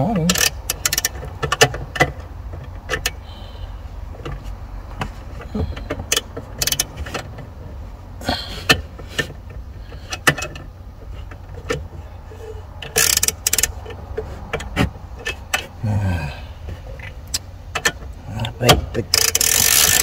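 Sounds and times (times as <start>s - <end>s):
tools clicking and knocking: 0.2s - 3.2s, 5.0s - 7.5s, 8.6s - 12.0s, 12.8s - 15.8s, 17.0s - 20.0s.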